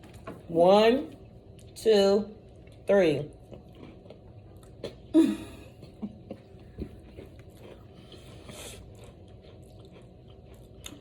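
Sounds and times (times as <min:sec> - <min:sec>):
person chewing crumbly cookie: 0:02.4 - 0:11.0.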